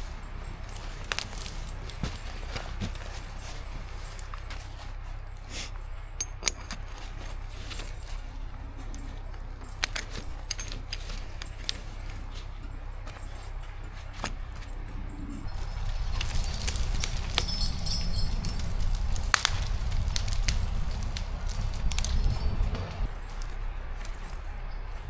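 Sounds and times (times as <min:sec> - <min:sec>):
footsteps through forest litter: 0:00.0 - 0:06.2, 0:06.8 - 0:25.0
steady low rumble: 0:00.0 - 0:25.0
sharp snaps and clicks: 0:15.6 - 0:24.7.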